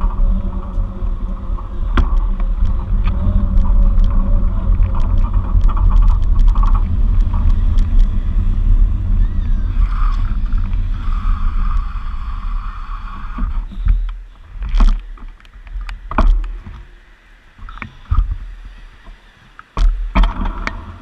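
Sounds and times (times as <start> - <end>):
sharp knocks and thumps: 0.0 - 8.2, 13.3 - 16.9, 19.8 - 20.9
steady hiss: 0.0 - 21.0
wind rumbling on microphone: 0.0 - 21.0.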